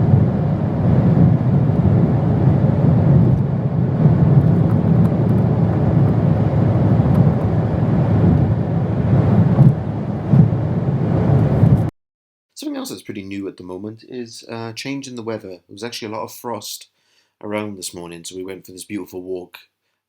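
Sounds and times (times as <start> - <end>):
road and tyre noise: 0.0 - 11.9.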